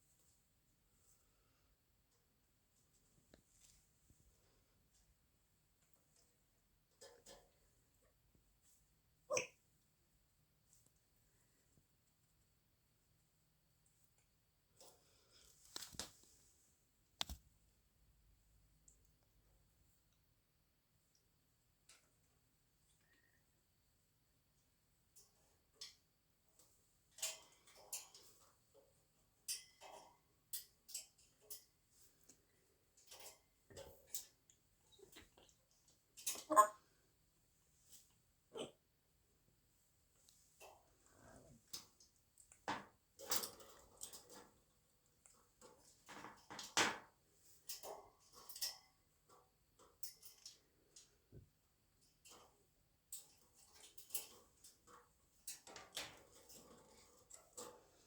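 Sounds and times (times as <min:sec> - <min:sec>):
parrot whispering: 0:36.4 - 0:36.8.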